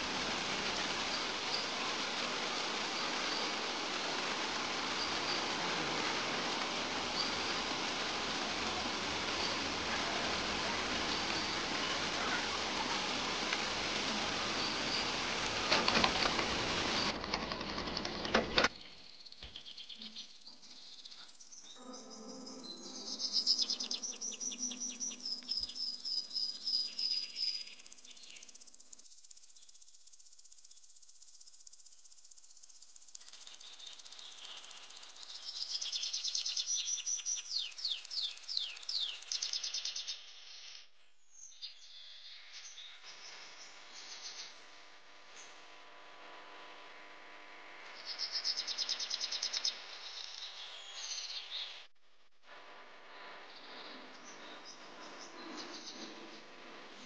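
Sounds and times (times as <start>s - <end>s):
outdoor hiss: 0.0s - 57.0s
high-pitched chirping trills: 18.8s - 28.5s.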